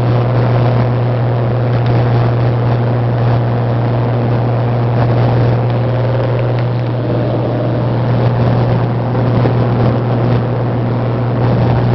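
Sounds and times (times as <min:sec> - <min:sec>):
light aircraft engine droning: 0:00.0 - 0:11.9.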